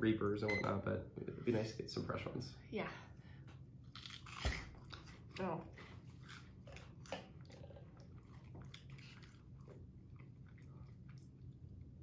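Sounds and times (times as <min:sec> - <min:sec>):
faint chewing of crunchy snacks: 0:03.8 - 0:12.0.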